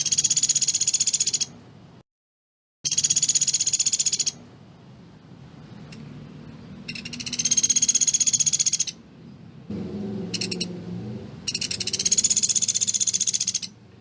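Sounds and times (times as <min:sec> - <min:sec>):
woodpecker rattling trills: 0:00.0 - 0:01.5, 0:02.9 - 0:04.4, 0:06.8 - 0:09.0, 0:10.3 - 0:10.7, 0:11.4 - 0:13.8.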